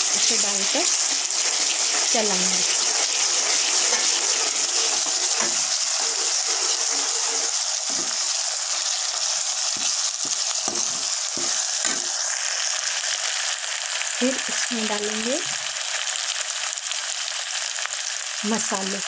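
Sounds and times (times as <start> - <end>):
onions sizzling in oil: 0.0 - 19.0
ladle scraping and knocking pan: 0.9 - 8.4, 9.8 - 12.2.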